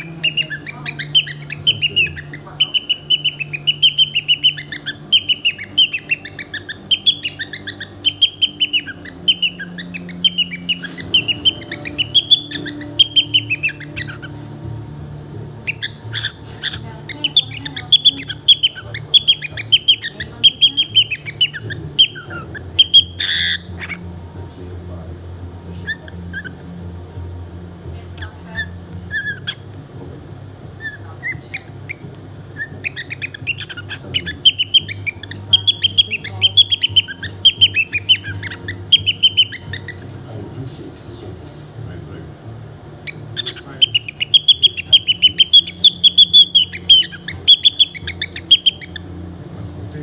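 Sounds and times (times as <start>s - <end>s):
cockatiel harsh squawk: 0.0s - 14.4s, 15.6s - 24.1s, 25.8s - 26.6s, 28.2s - 29.7s, 30.8s - 32.0s, 32.6s - 40.0s, 43.0s - 49.2s
cockatiel chirping: 0.0s - 14.6s, 15.5s - 24.2s, 25.8s - 26.8s, 28.0s - 29.8s, 30.8s - 40.2s, 43.0s - 50.0s.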